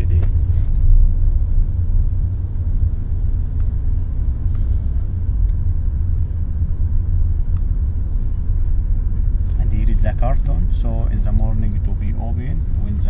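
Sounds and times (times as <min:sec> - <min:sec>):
loud low rumble: 0:00.0 - 0:13.0
faint clicks: 0:03.5 - 0:04.7, 0:07.4 - 0:07.8.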